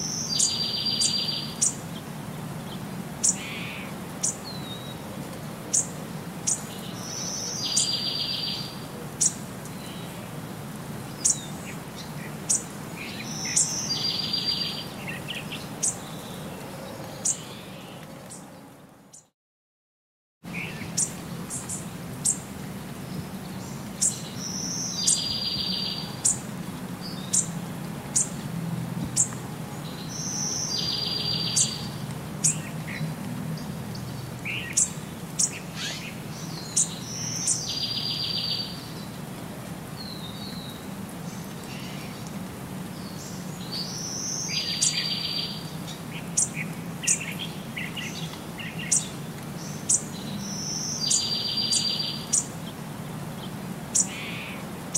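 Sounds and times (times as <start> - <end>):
birds chirping and singing: 0.0 - 1.8, 5.7 - 10.2, 11.2 - 19.3, 23.1 - 28.4, 29.2 - 33.0, 33.6 - 39.1, 43.0 - 52.5.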